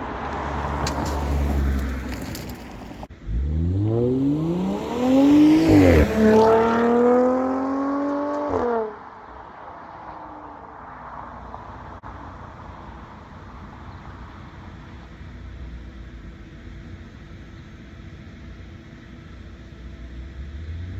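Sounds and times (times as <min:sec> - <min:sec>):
car engine accelerating hard: 0:03.1 - 0:09.0.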